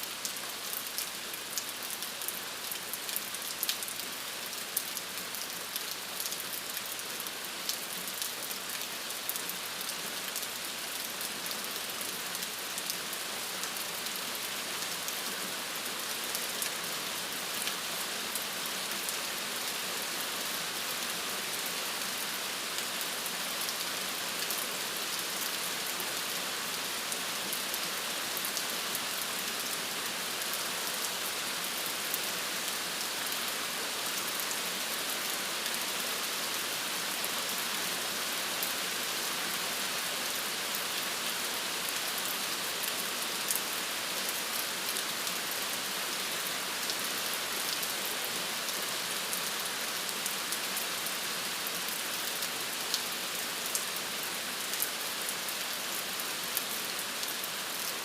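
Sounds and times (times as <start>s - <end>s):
steady rainfall: 0.0s - 58.0s
raindrops ticking on surface: 0.1s - 13.0s.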